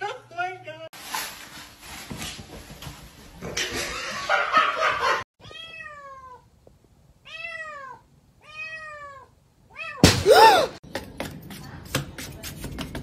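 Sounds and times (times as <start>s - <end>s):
cat meowing: 5.4s - 6.5s, 7.2s - 10.0s.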